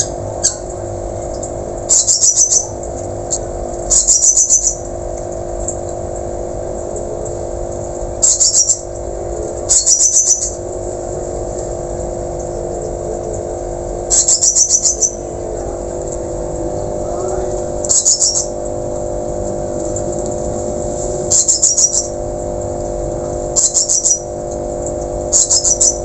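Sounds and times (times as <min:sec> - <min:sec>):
low hum: 0:00.0 - 0:26.0
thrush calling: 0:01.9 - 0:02.8, 0:03.9 - 0:04.8, 0:08.2 - 0:08.9, 0:09.7 - 0:10.6, 0:14.1 - 0:15.4, 0:17.8 - 0:18.6, 0:21.3 - 0:22.2, 0:23.6 - 0:24.3, 0:25.3 - 0:26.0.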